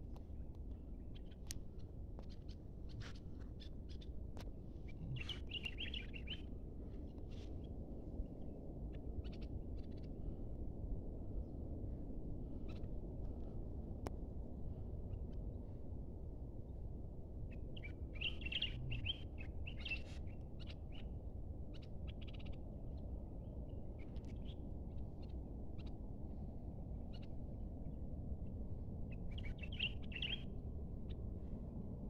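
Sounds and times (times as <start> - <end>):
low rumble: 0.0 - 8.5, 18.4 - 19.3
small birds chirping: 4.7 - 6.4, 17.8 - 20.3, 29.3 - 30.4.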